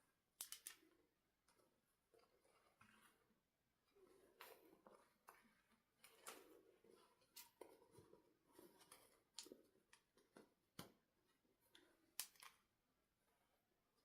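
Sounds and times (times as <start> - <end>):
small sharp clicks: 0.4 - 0.9.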